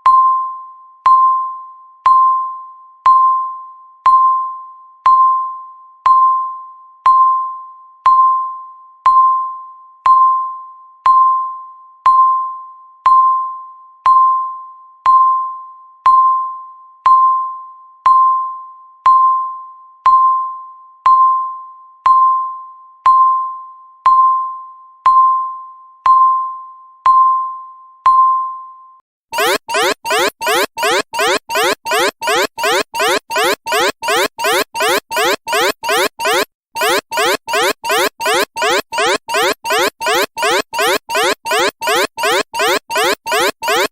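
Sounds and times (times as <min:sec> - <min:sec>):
electronic timer beeps: 0:29.4 - 0:43.9.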